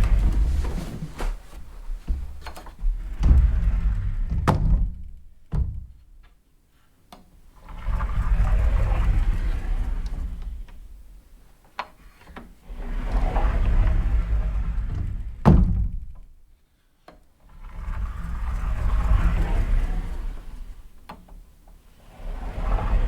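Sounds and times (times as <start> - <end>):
low rumbling: 0.0 - 6.0, 7.6 - 11.1, 12.7 - 16.1, 17.6 - 21.0, 22.0 - 23.0
door clicks and thuds: 0.0 - 6.3, 15.0 - 16.2.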